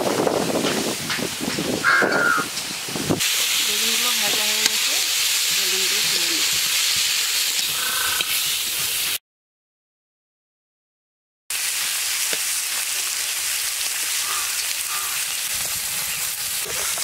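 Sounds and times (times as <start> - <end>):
vegetables sizzling in a pan: 0.4 - 9.2, 11.5 - 17.0
crow cawing: 1.8 - 2.5, 7.7 - 8.3, 14.2 - 15.3.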